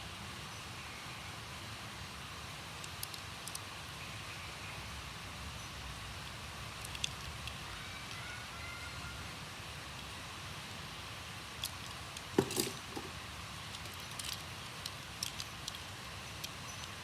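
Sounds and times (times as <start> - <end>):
toy cars clicking and tapping: 2.8 - 3.7, 6.7 - 8.2, 11.5 - 17.0
toy car knock: 12.4 - 13.1.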